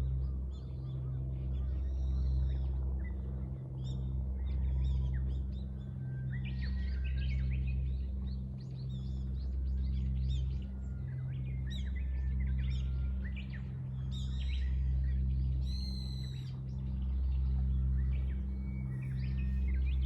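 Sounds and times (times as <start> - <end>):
steady low hum: 13.2 - 20.0.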